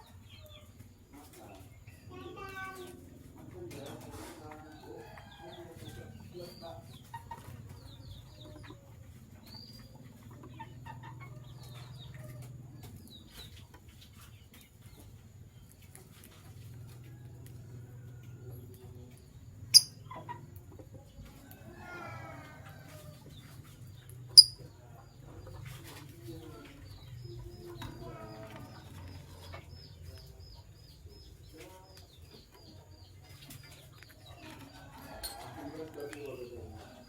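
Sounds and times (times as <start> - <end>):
lovebirds chirping: 18.6 - 20.6, 23.4 - 37.0.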